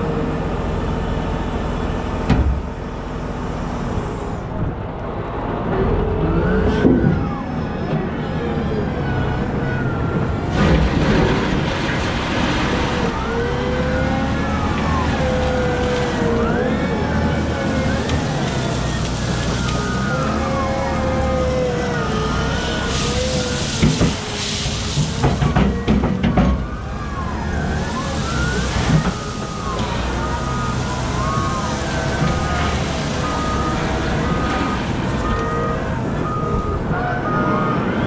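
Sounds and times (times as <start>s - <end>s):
wheel loader engine rumble: 0.0s - 38.0s.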